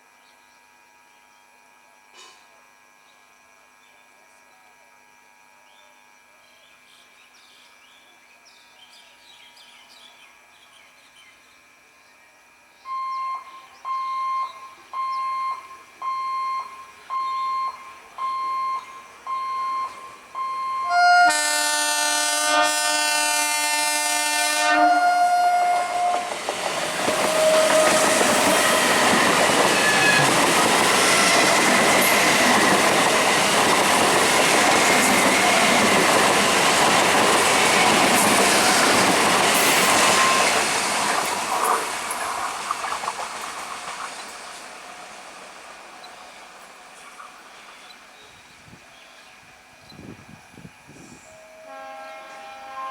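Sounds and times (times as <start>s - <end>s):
high electronic beep: 12.9s - 21.0s
train horn blast: 20.8s - 30.4s, 51.0s - 52.9s
train wheels rolling on rails: 25.2s - 48.1s.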